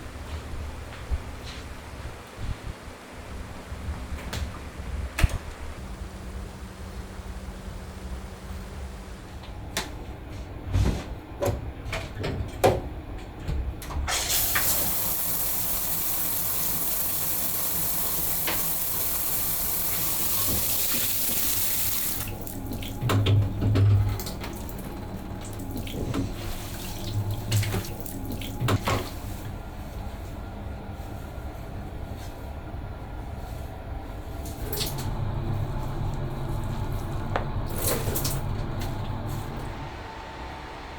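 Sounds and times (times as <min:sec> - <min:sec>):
tap running into sink: 0:19.9 - 0:24.9.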